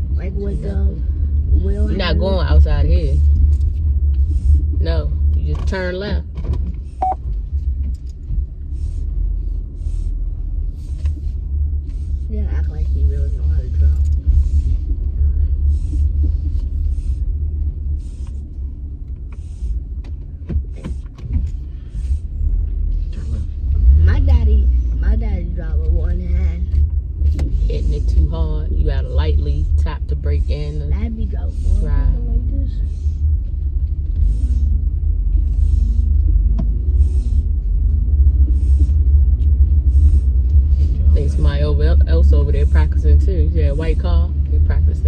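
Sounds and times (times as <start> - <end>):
car rumble from inside cabin: 0.0 - 45.0.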